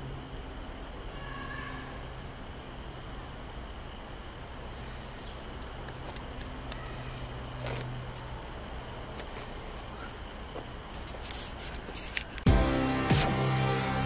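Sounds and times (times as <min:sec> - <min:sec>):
small birds chirping: 0:00.0 - 0:11.2
steady low hum: 0:00.0 - 0:14.0.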